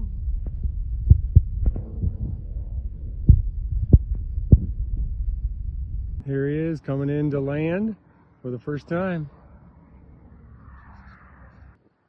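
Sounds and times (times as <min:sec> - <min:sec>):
sharp thumps: 0:00.0 - 0:06.2
wind buffeting microphone: 0:00.0 - 0:06.7
faint aircraft engine drone: 0:00.0 - 0:11.8.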